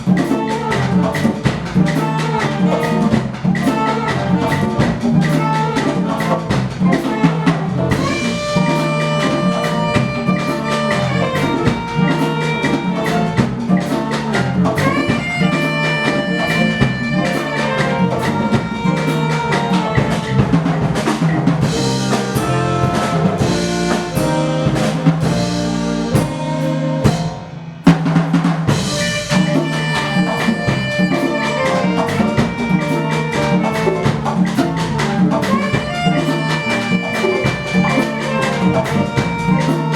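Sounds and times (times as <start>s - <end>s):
drum kit: 0.0s - 39.9s
hand percussion: 0.0s - 39.9s
brass sustained chords: 7.1s - 13.4s, 21.6s - 27.2s, 28.8s - 34.1s.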